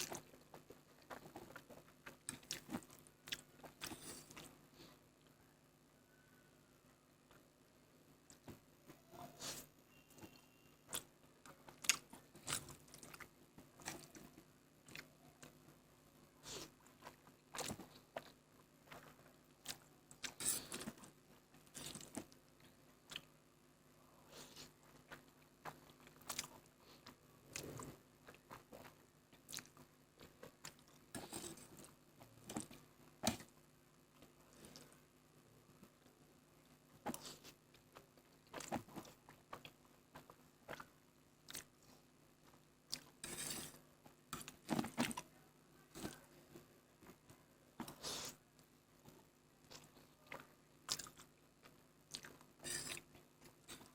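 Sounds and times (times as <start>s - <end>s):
person chewing noodles: 0.0s - 5.3s, 9.5s - 15.6s, 16.4s - 23.3s, 24.4s - 33.5s, 37.1s - 45.3s, 49.1s - 53.9s.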